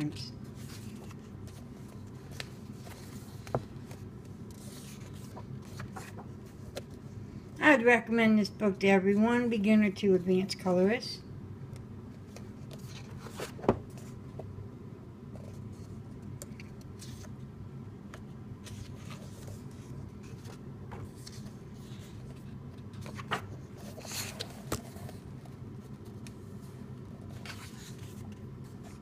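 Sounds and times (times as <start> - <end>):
low room hum: 0.0 - 29.0
paper rustling: 0.5 - 6.8, 18.6 - 25.5, 27.2 - 29.0.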